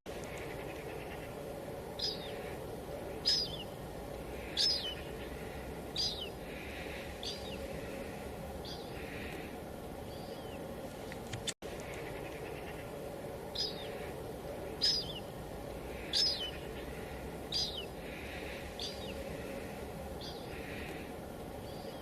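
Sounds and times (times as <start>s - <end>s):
bird chirping: 0.2s - 8.0s, 8.6s - 9.4s, 10.0s - 10.7s, 11.8s - 19.3s, 20.2s - 21.0s.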